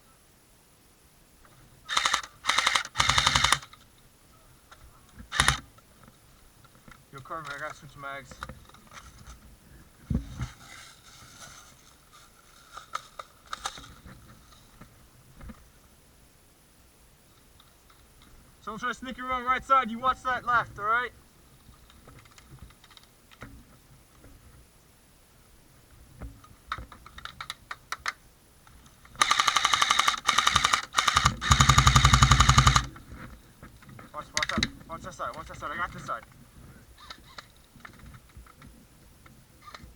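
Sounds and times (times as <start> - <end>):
airsoft gun automatic fire: 1.9 - 3.7, 5.4 - 5.6, 29.2 - 32.9
scattered clicks: 1.9 - 3.8, 29.0 - 33.0.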